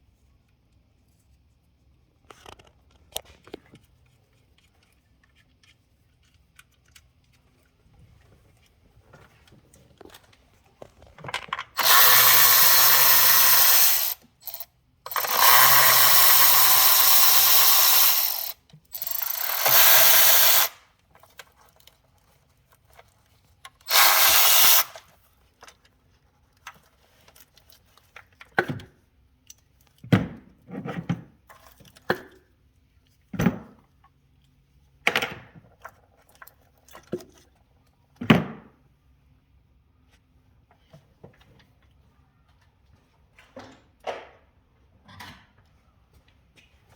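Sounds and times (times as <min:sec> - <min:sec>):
tools and metal parts clinking: 0:11.3 - 0:20.7
power tool running: 0:11.8 - 0:20.8, 0:23.8 - 0:25.0.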